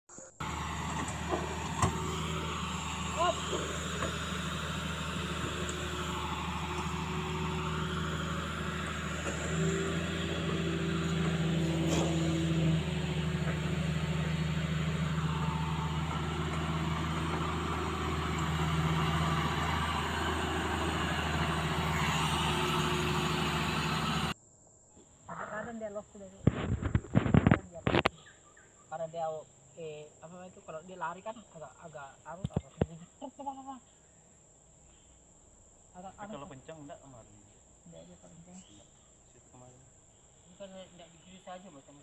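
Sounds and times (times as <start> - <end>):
excavator diesel engine running: 0.4 - 24.4.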